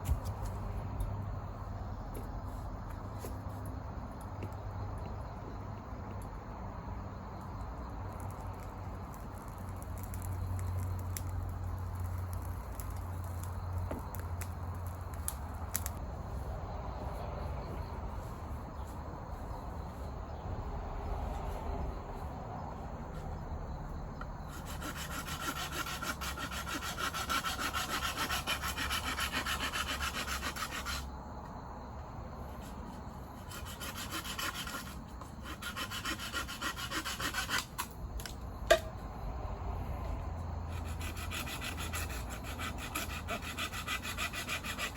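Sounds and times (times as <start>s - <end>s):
scraping on wood: 24.5s - 31.0s, 33.4s - 38.9s, 40.7s - 44.9s.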